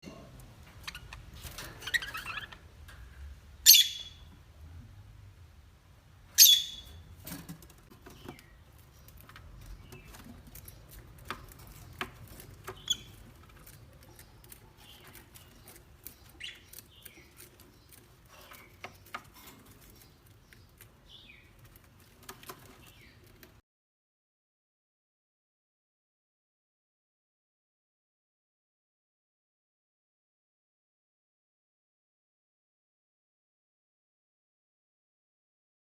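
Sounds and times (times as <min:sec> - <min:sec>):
birds clicking and tapping: 0:00.3 - 0:04.3, 0:06.4 - 0:23.6
parrots chirping: 0:00.6 - 0:02.7, 0:03.6 - 0:04.3, 0:06.4 - 0:07.1, 0:08.1 - 0:23.4.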